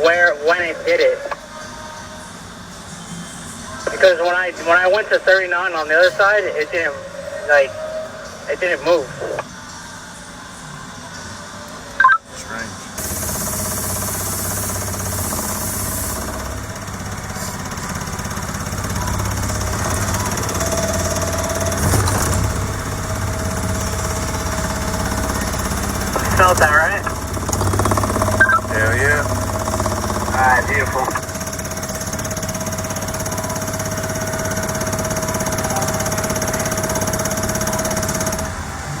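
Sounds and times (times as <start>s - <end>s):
steady warning tone: 13.0s - 39.0s.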